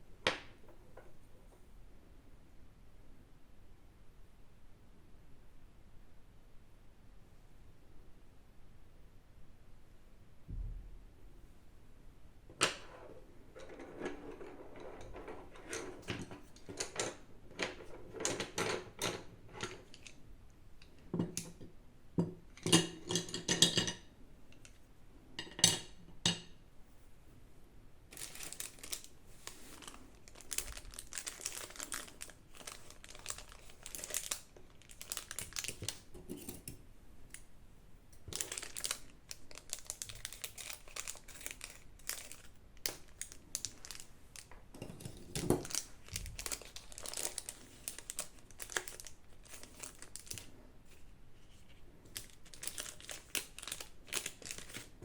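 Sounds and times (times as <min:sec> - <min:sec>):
packaging crinkling and rustling: 0:28.1 - 0:36.1, 0:38.2 - 0:55.0.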